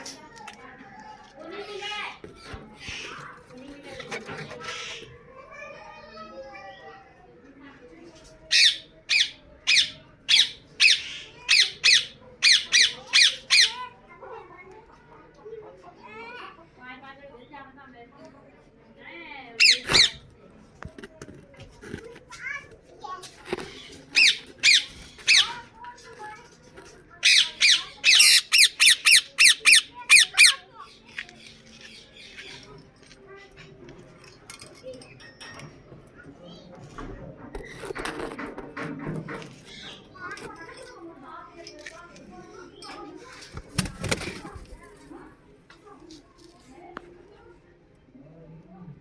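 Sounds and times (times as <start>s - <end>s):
parakeet squawking shrilly: 19.6s - 20.2s, 24.2s - 25.6s, 27.2s - 30.7s.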